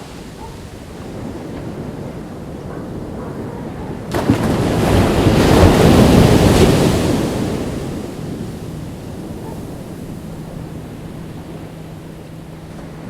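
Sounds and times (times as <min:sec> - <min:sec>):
ocean wave crashing on beach: 0:04.0 - 0:11.8.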